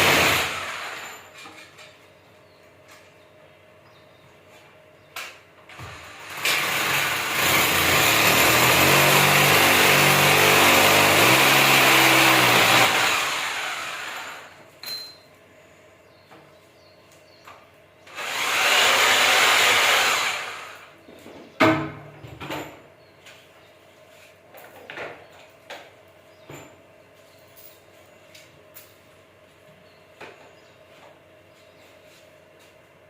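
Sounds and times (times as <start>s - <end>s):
electric power tool motor: 0.0s - 1.1s, 5.7s - 14.6s, 18.1s - 20.9s.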